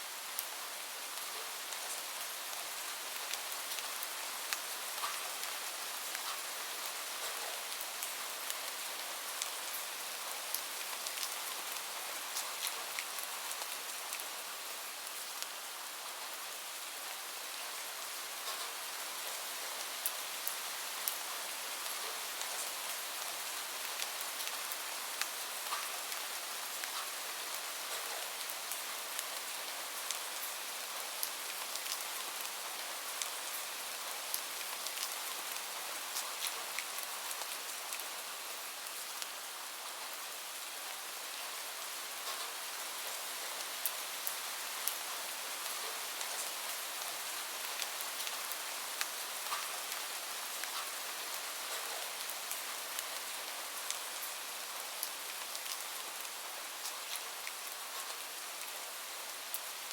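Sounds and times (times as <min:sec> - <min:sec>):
rain falling: 0:00.0 - 0:59.9
crackles and ticks: 0:03.2 - 0:06.4, 0:18.4 - 0:18.7, 0:23.9 - 0:26.2, 0:26.8 - 0:27.2, 0:34.3 - 0:38.1, 0:42.2 - 0:43.2, 0:43.8 - 0:54.4, 0:55.0 - 0:58.7.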